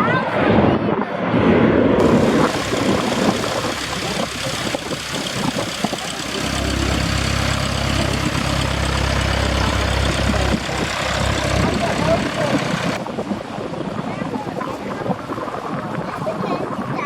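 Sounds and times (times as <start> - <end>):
engine running with low hum: 2.0 - 14.9.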